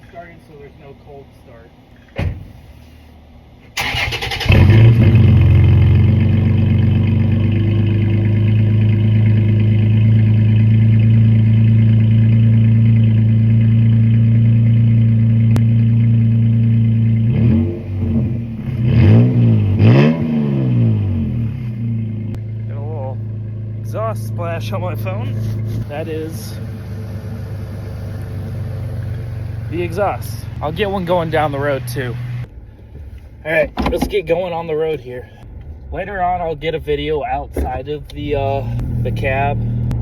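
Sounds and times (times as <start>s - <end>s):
truck engine starting and idling: 0.0s - 40.0s
engine revving: 3.8s - 32.5s.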